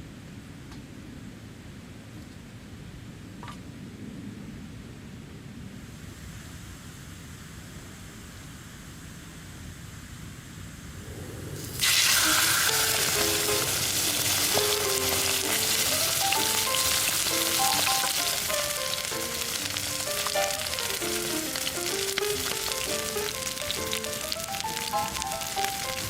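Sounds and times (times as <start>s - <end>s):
food sizzling in a pan: 11.6s - 26.0s
background music melody: 12.2s - 26.0s.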